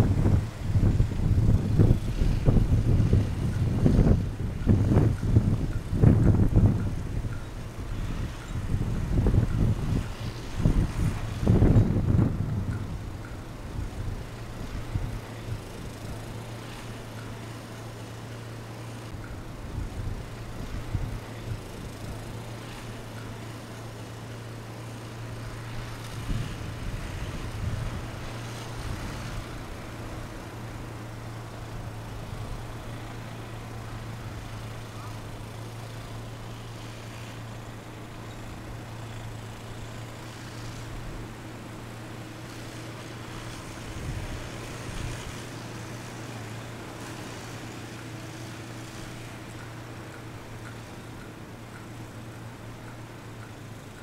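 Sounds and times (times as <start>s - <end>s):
low engine hum: 0.0s - 54.0s
rough engine bursts: 0.0s - 54.0s.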